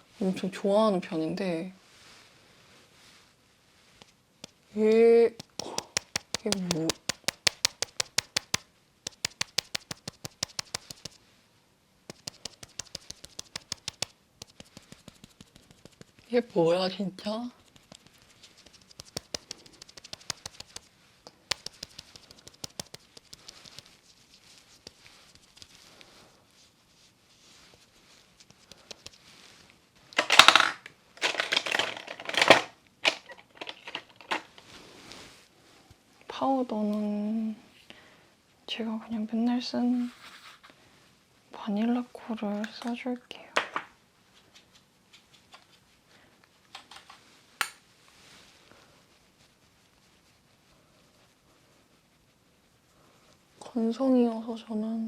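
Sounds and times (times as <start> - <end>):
cushion puff patting face: 5.3 - 11.2, 12.0 - 16.3, 17.6 - 26.2
crinkly plastic crackling: 30.2 - 34.8.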